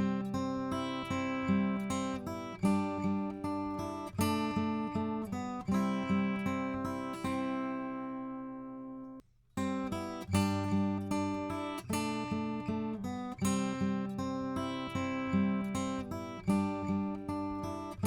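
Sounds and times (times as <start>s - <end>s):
acoustic guitar plucking: 0.0s - 18.0s.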